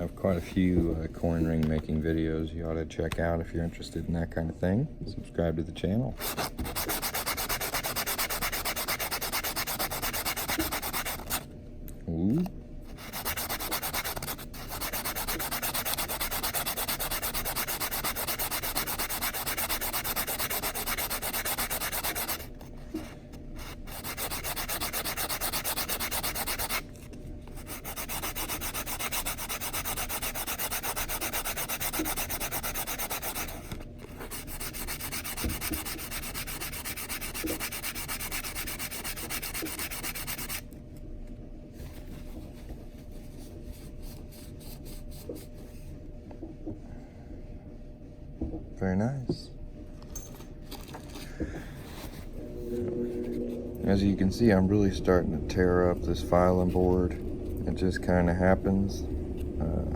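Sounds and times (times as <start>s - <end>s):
metal ring rasping on nail file: 6.2s - 11.4s, 13.0s - 22.5s, 23.6s - 26.8s, 27.6s - 40.6s.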